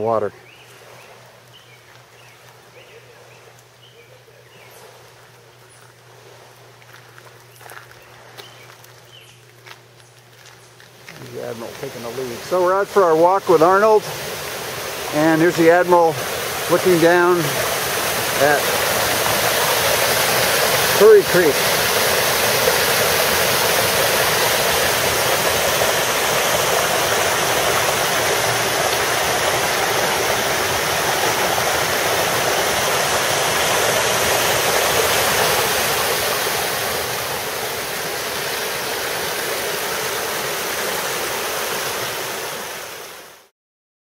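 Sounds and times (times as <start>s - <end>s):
creek water rushing: 11.0s - 43.5s.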